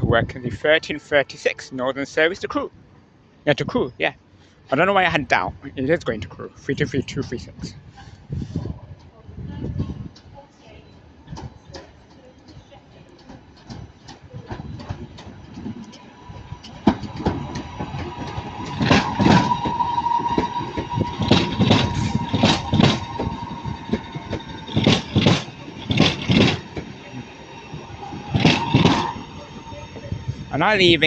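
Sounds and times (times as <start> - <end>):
train wheels knocking over rail joints: 11.4 - 30.3.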